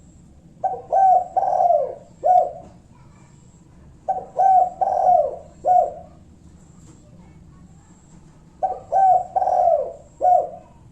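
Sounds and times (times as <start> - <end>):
dove cooing: 0.6 - 2.8, 4.0 - 6.3, 8.6 - 10.9.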